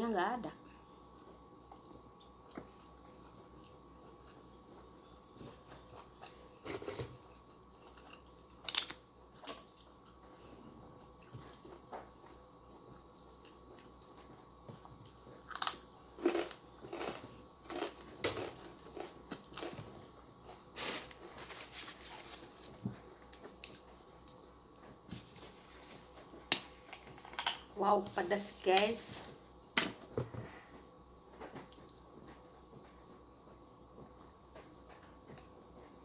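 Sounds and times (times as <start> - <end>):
person chewing: 1.7 - 10.3, 11.0 - 21.4
cracker crunching: 5.6 - 10.3, 11.2 - 24.5.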